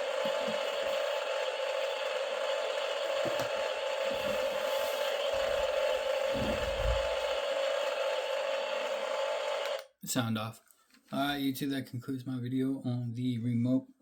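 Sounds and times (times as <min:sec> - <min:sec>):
toy tank engine drone from speaker: 0:00.0 - 0:09.8
low thumps: 0:06.3 - 0:07.2.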